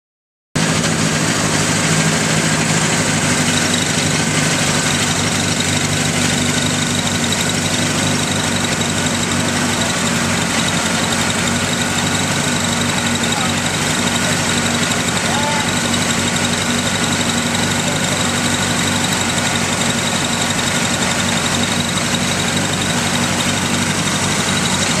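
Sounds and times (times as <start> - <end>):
rally car engine idling: 0.6 - 25.0.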